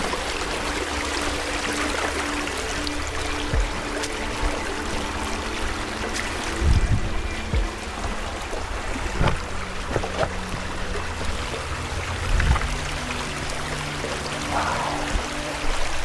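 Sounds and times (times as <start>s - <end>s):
running water: 0.0s - 16.0s
dull low thumps: 3.5s - 13.3s.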